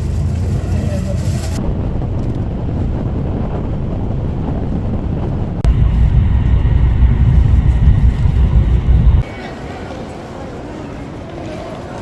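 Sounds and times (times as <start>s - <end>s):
vehicle rumble: 0.0s - 9.3s
wind buffeting microphone: 0.0s - 9.3s.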